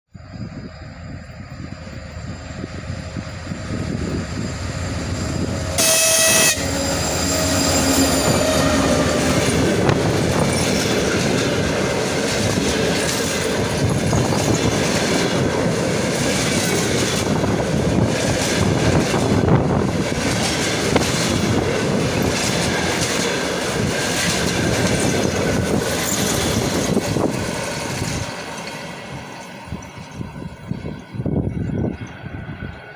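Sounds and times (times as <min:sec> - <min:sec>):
diesel locomotive approaching: 0:00.1 - 0:32.9
train horn blast: 0:05.7 - 0:09.9
wheels clattering over rail joints: 0:08.0 - 0:31.1.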